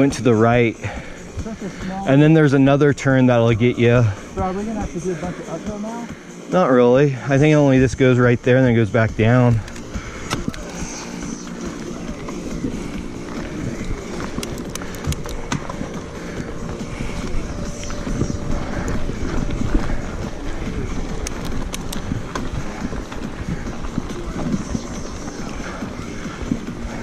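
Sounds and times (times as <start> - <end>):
bike tyres rumbling on dirt: 7.5 - 27.0
bike clicks and rattles: 9.0 - 27.0.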